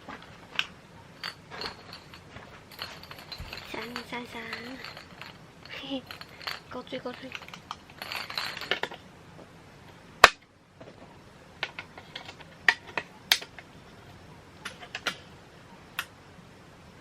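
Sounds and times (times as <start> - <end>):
hard objects clicking and tapping: 0.0 - 9.0, 14.6 - 15.2.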